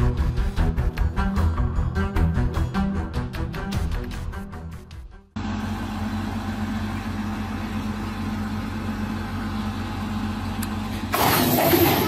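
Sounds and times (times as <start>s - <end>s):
heavy equipment engine running: 5.3s - 12.0s.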